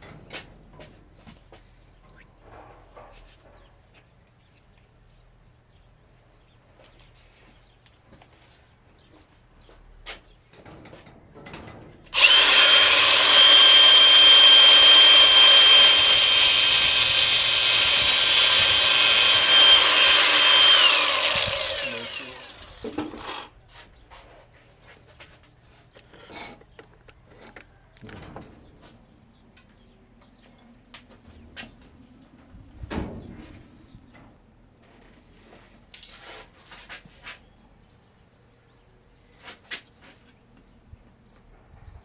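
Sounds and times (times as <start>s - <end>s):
power tool whining: 12.2s - 23.5s.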